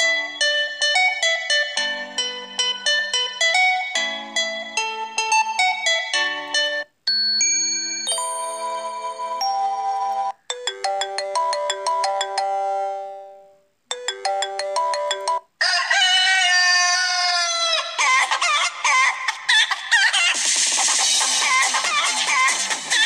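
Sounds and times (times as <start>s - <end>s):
bell-like chime ringtone: 0.0s - 15.5s
rooster crow ringtone: 14.0s - 17.7s.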